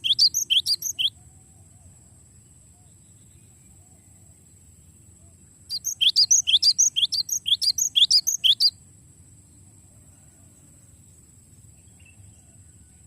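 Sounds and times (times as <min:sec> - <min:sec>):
bird chirping rapid trill: 0:00.0 - 0:01.1, 0:05.7 - 0:08.7.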